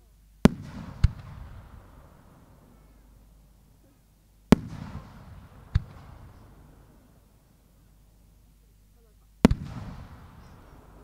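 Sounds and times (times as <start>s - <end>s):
firework crack: 0.0s - 11.0s
firework boom echoing: 0.4s - 3.0s, 4.5s - 7.3s, 9.4s - 11.0s.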